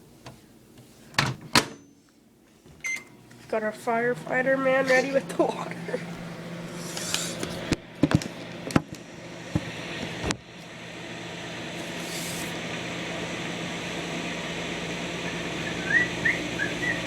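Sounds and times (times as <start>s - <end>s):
microwave oven humming: 0.0s - 17.0s
microwave door and keypad clicks: 2.8s - 3.2s.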